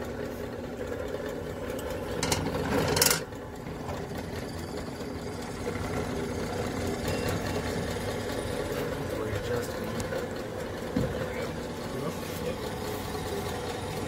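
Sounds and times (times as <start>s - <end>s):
drill press motor running: 0.0s - 14.0s.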